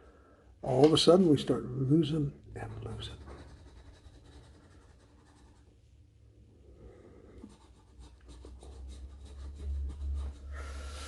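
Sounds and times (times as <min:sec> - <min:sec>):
scratching lottery ticket: 0:02.6 - 0:05.6, 0:07.4 - 0:10.6.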